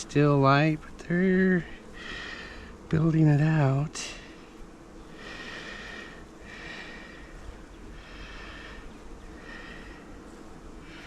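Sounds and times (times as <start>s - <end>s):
person breathing through nose: 1.8s - 2.8s, 5.2s - 10.2s.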